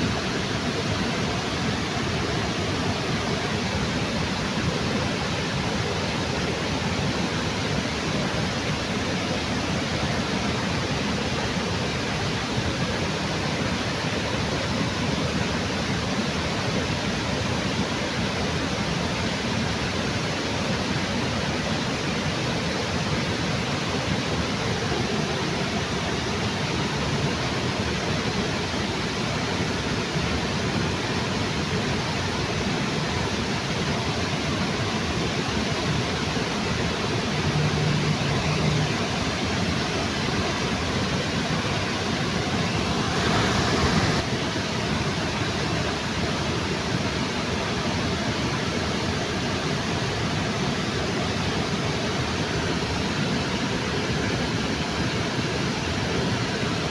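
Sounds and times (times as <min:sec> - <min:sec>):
waterfall rushing: 0:30.2 - 0:56.9.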